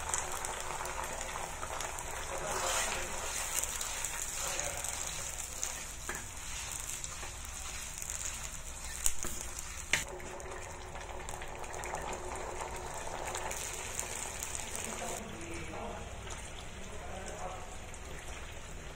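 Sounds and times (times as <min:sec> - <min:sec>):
wooden spatula stirring: 0:00.0 - 0:10.4
food sizzling in hot oil: 0:00.0 - 0:15.3.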